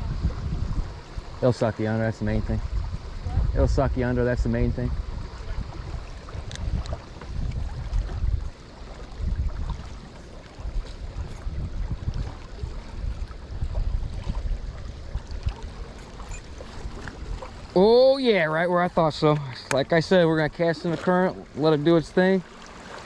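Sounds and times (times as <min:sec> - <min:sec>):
wind gusting on microphone: 0:00.0 - 0:08.5, 0:09.1 - 0:20.6.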